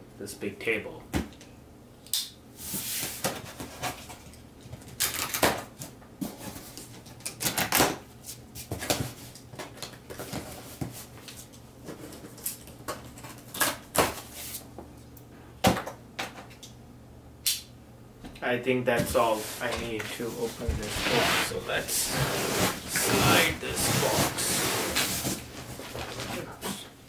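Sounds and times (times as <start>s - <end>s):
cardboard scraping and rustling: 19.2s - 26.8s.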